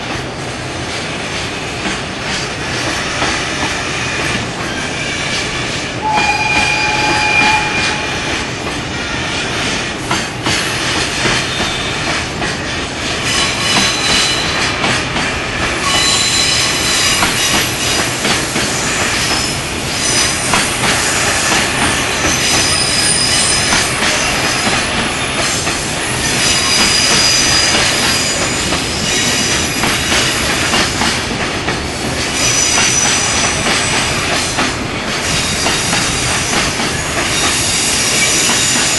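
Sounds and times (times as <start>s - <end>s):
train wheels rumbling and clattering: 0.0s - 38.9s
train wheels squealing: 3.1s - 8.4s, 11.2s - 12.2s, 13.2s - 14.8s, 15.8s - 30.8s, 32.3s - 34.6s, 35.2s - 38.9s.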